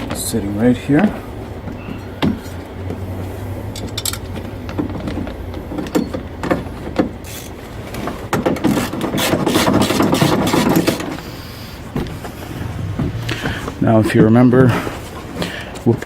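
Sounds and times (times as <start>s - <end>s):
rattling and rustling: 0.0s - 16.0s
car door parts clicking: 1.4s - 15.9s.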